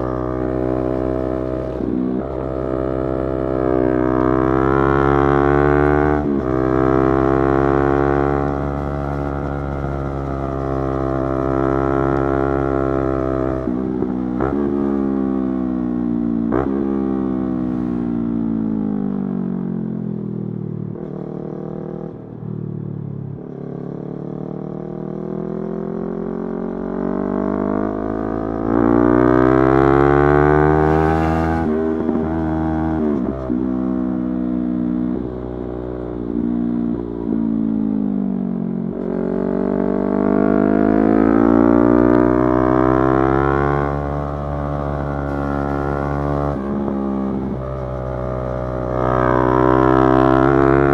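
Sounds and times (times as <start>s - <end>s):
motorcycle engine revving: 24.5s - 50.9s.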